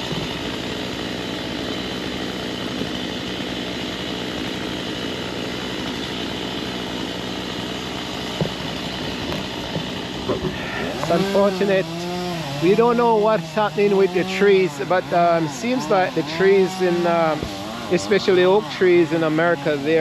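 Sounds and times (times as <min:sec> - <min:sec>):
engine running steadily: 0:00.0 - 0:20.0
short knocks: 0:08.2 - 0:11.3.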